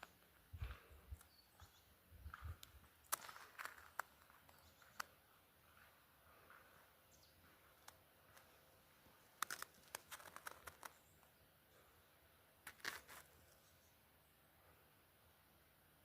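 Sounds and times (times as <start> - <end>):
short sharp clicks and crackles: 2.6 - 5.2, 9.2 - 11.3.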